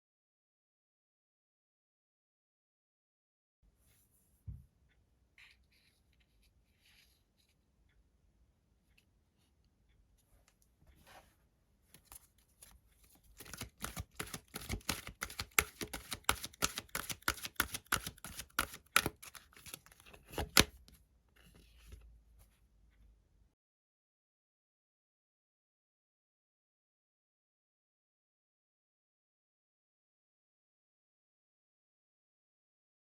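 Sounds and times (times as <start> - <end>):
cards being shuffled: 12.0 - 20.8
card snaps and slaps: 13.4 - 20.7.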